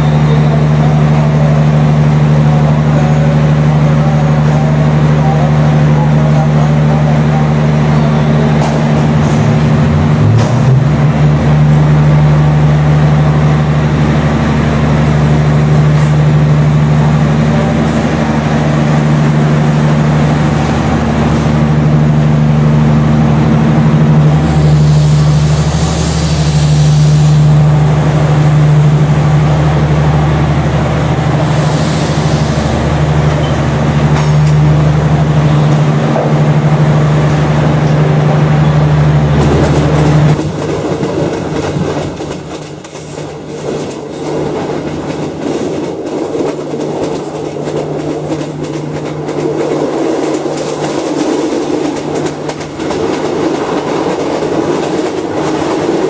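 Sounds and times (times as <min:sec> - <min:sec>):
train running with low drone: 0:00.0 - 0:56.0
train hiss: 0:24.4 - 0:29.0, 0:31.3 - 0:33.2.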